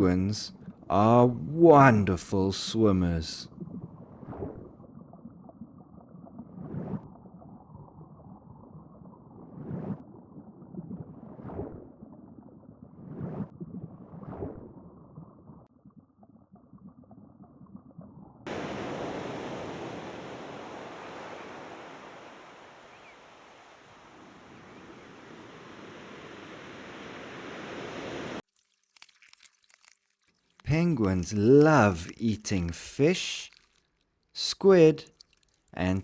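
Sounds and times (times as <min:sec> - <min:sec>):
muffled rushing water: 0:18.5 - 0:28.4
ocean surf hissing: 0:18.5 - 0:28.4.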